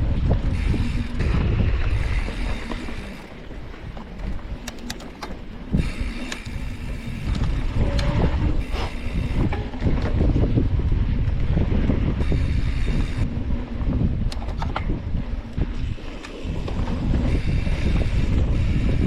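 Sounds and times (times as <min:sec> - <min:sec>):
bicycle tyres rumbling on a trail: 0:00.0 - 0:19.0
wind buffeting microphone: 0:00.0 - 0:19.0
sharp clicks and rattles: 0:03.0 - 0:06.7.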